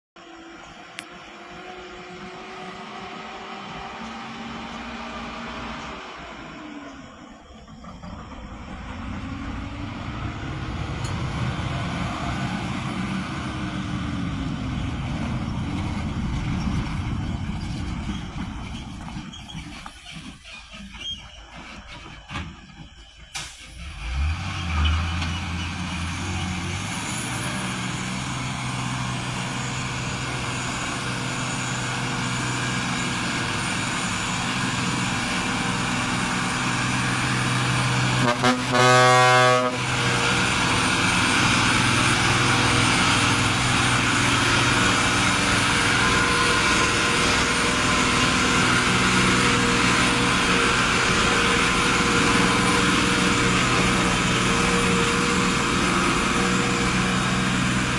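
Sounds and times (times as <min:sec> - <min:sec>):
diesel truck engine running: 0:00.2 - 0:57.9
vehicle horn: 0:38.1 - 0:40.2.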